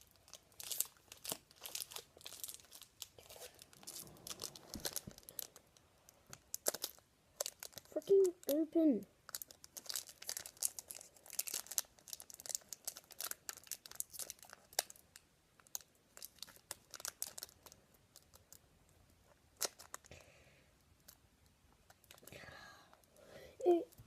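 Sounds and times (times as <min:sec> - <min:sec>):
card pack wrapper crinkling: 0:00.0 - 0:08.6, 0:09.3 - 0:15.0, 0:15.6 - 0:18.6, 0:19.6 - 0:20.1.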